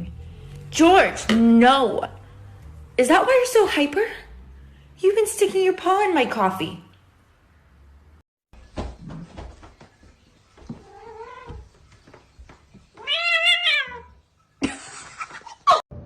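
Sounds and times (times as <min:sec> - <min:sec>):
cat meowing: 0:10.8 - 0:11.6, 0:13.0 - 0:14.2.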